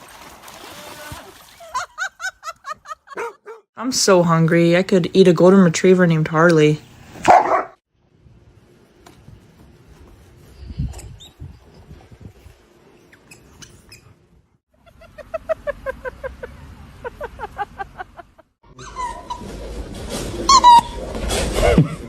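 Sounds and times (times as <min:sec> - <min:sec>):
dog yipping: 0:03.2 - 0:03.6, 0:07.3 - 0:07.8, 0:18.8 - 0:19.5.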